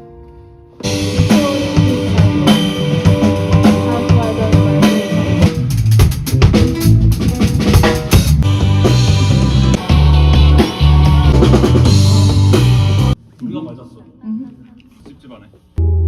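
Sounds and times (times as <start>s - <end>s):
guitar: 0.0s - 13.2s
live band playing: 0.7s - 13.2s
drum kit kick and rimshots: 0.8s - 13.2s.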